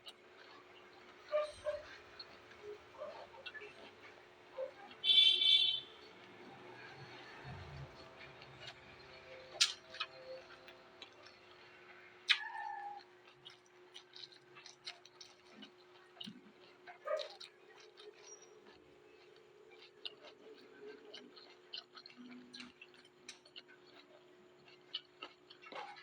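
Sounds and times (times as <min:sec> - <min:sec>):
chewing raw vegetables: 0:00.0 - 0:26.0
mouth clicks: 0:08.4 - 0:11.4.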